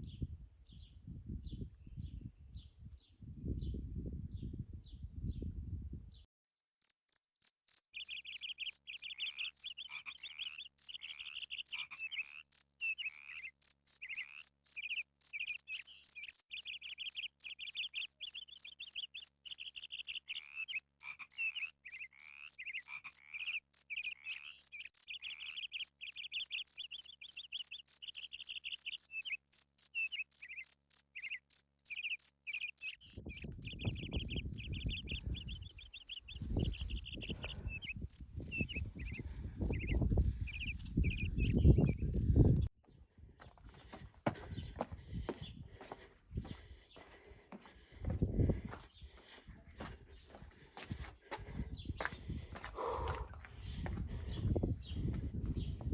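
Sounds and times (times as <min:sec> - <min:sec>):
insect pulsing trill: 0:06.5 - 0:42.7
insects rasping chorus: 0:06.8 - 0:42.7, 0:43.5 - 0:55.9.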